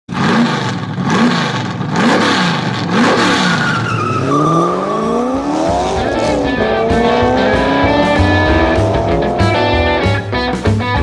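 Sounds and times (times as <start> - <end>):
car engine revving: 0.1 - 10.3
thin high sliding tone: 3.6 - 6.8.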